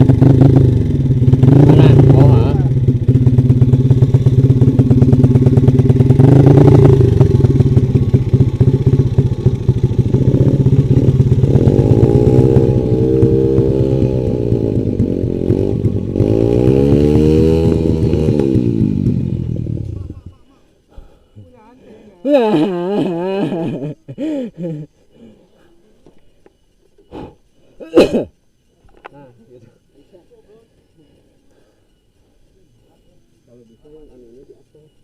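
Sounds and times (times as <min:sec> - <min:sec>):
motorcycle engine revving: 0:00.0 - 0:20.4.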